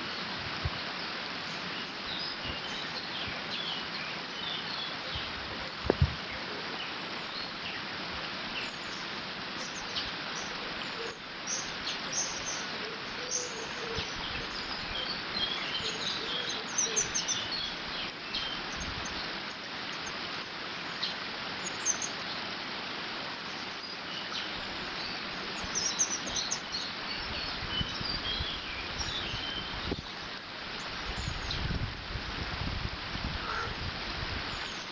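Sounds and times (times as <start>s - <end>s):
small birds chirping: 1.0s - 7.9s, 8.5s - 22.5s, 23.4s - 31.8s, 34.4s - 34.9s
wind rumble on microphone: 5.1s - 6.4s, 25.6s - 34.8s.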